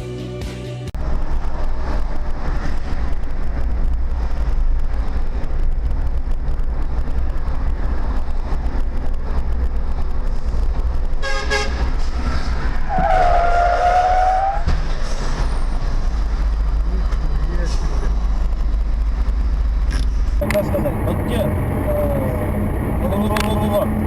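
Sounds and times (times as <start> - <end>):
music: 0.0 - 1.0
tyre and wind noise: 1.0 - 20.5
car engine and road rumble: 1.0 - 24.0.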